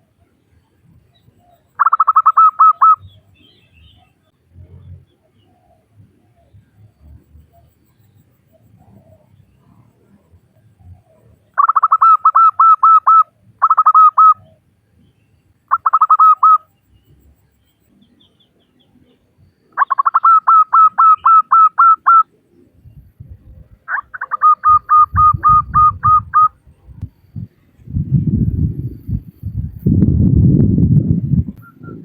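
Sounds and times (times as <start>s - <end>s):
dove cooing: 1.8s - 3.2s, 10.8s - 14.6s, 19.8s - 22.3s, 23.5s - 26.6s
low rumble: 24.7s - 32.0s.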